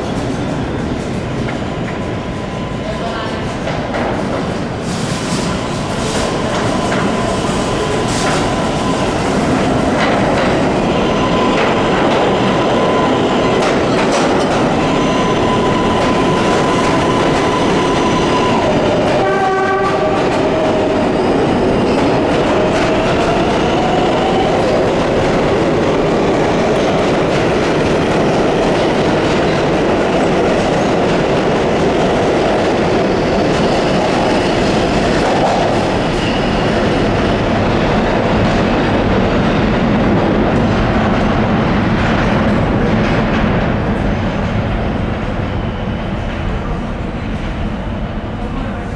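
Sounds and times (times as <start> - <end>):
subway train wheels clattering: 0.0 - 48.9
train horn blast: 19.0 - 20.8.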